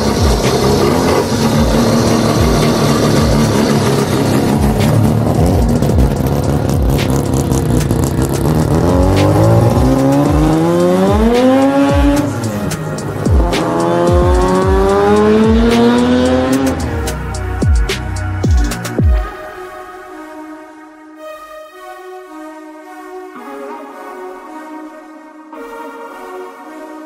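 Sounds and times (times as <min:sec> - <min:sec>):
engine revving: 0:00.0 - 0:19.0
electronic music with bass hits: 0:00.0 - 0:27.0.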